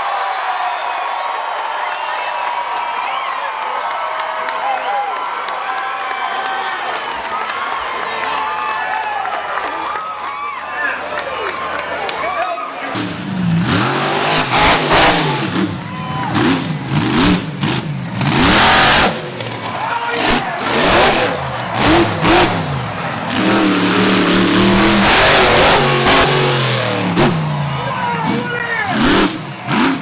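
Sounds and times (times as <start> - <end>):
monster truck engine revving: 12.8 - 30.0.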